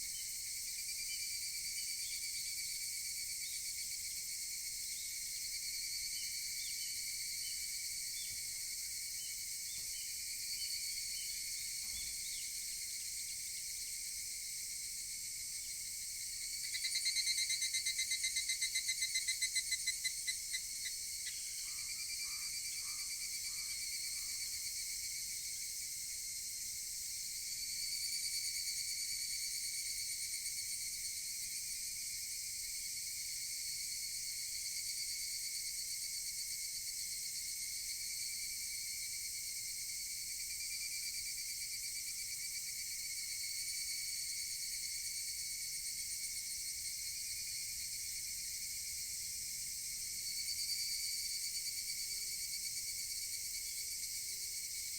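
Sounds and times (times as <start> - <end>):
cicadas chorus: 0.0 - 54.9
loud pulsed cicada call: 0.0 - 54.9.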